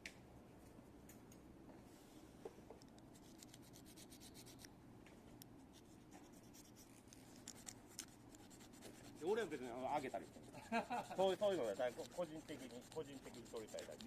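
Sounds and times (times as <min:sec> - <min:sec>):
low steady background noise: 0:00.0 - 0:14.0
faint rubbing and scratching: 0:05.7 - 0:14.0.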